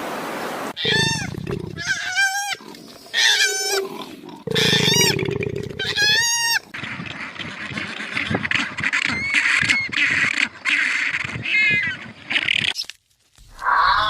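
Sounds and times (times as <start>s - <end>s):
high-pitched animal call: 0.8s - 2.6s, 4.5s - 6.6s, 13.6s - 14.0s
rough noisy animal calls: 0.8s - 12.6s, 13.6s - 14.0s.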